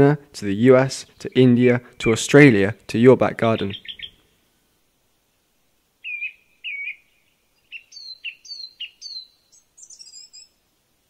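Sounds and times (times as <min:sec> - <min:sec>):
songbird whistling song: 0:03.6 - 0:04.3, 0:06.0 - 0:10.6.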